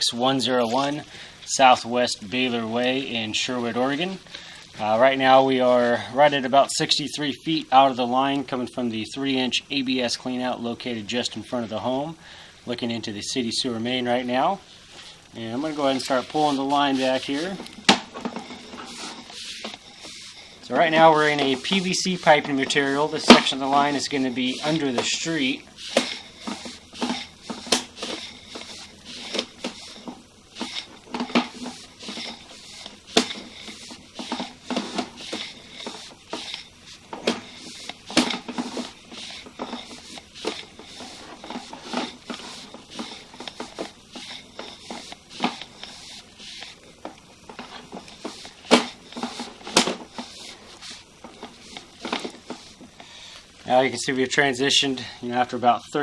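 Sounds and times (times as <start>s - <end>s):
push cable pulled through pipe: 13.6s - 55.5s
irregular clicks and knocks: 14.7s - 53.7s.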